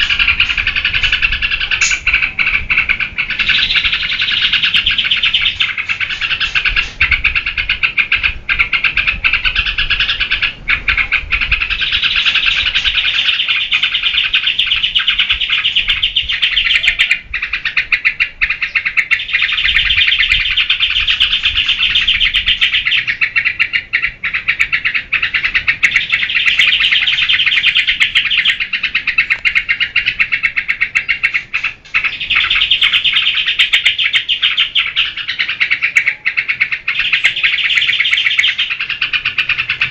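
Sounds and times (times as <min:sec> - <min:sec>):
bird singing bubbling notes: 0:00.0 - 0:39.9.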